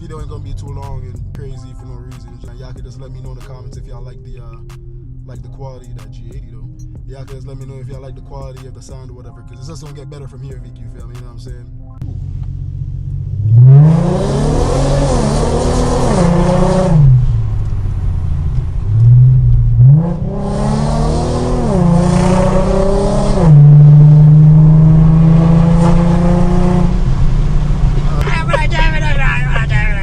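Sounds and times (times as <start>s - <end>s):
car exhaust revving: 0.0s - 1.6s, 12.0s - 30.0s.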